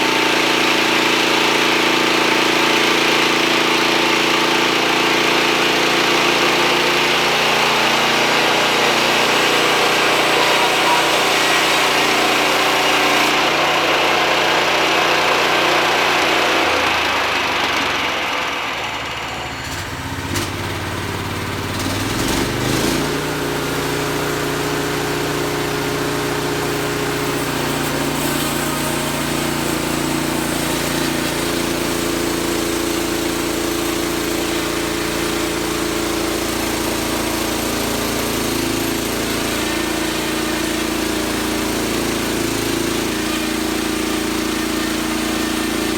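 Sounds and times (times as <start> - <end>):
sawmill engine running: 0.0 - 45.9
loud hiss: 4.5 - 13.4, 26.3 - 33.5.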